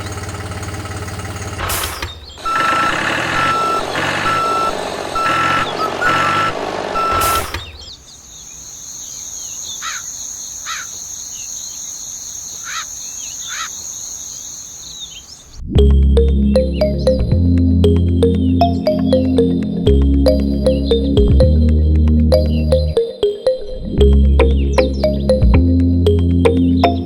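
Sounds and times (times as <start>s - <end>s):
engine running: 0.0s - 7.8s
short chirps: 2.0s - 7.9s
electronic beeps: 2.4s - 7.9s, 16.2s - 21.6s, 22.3s - 27.0s
steady high tone: 2.5s - 7.6s, 15.8s - 27.0s.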